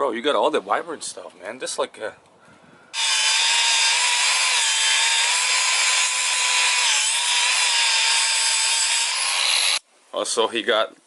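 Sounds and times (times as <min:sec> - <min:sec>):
power tool hissing and whining: 0:03.0 - 0:09.8.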